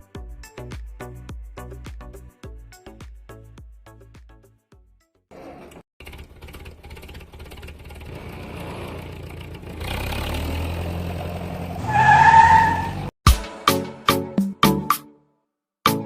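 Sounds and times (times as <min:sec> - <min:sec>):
engine revving: 0:05.3 - 0:13.1.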